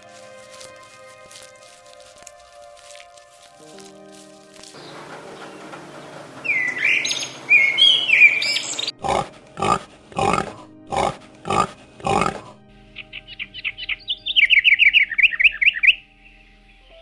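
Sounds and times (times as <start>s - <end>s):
animal grunt-like calls: 9.0s - 12.6s.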